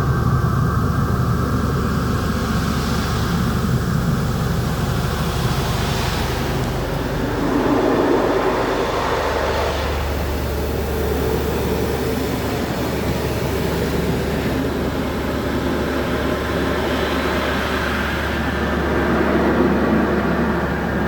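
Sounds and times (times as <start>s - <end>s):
car wash mechanical drone: 0.0s - 21.0s
low hum: 4.8s - 11.4s.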